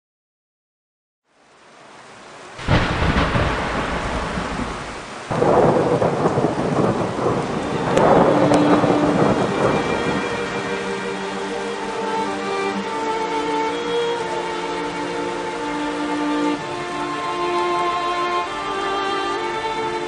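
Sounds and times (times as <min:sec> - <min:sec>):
steady rain: 0:01.2 - 0:20.0
thunder rumbling: 0:02.6 - 0:15.0.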